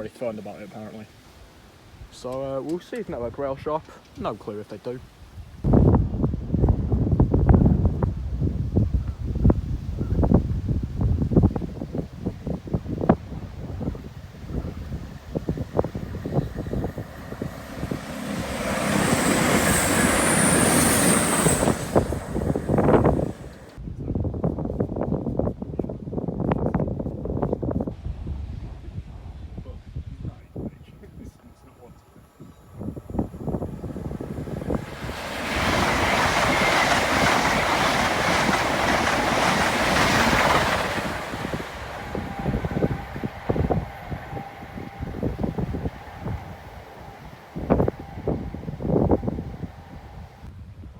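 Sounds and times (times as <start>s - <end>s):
wind buffeting microphone: 5.0s - 50.9s
train passing: 5.6s - 23.8s, 30.9s - 50.5s.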